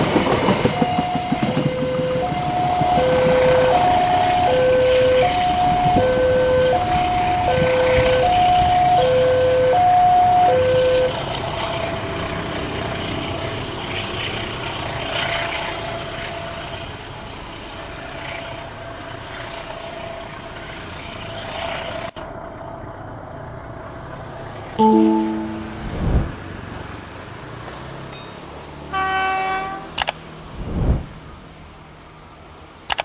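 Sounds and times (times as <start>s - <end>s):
level crossing two-tone alarm: 0.7s - 11.2s, 24.8s - 26.0s.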